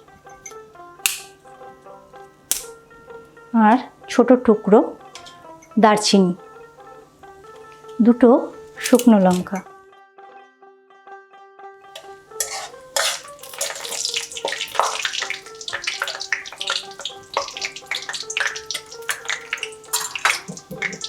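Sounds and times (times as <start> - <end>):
spatula clicking against pan: 1.0 - 1.3, 2.5 - 2.7, 12.0 - 21.0
spices sizzling in hot oil: 12.3 - 21.0.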